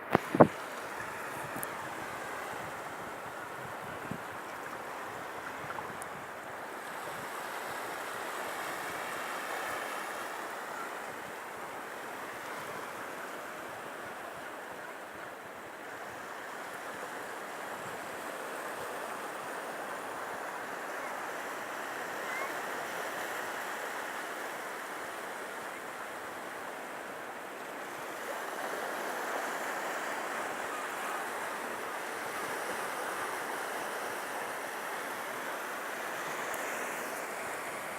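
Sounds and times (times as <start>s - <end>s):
surf washing onto beach: 0.0s - 37.9s.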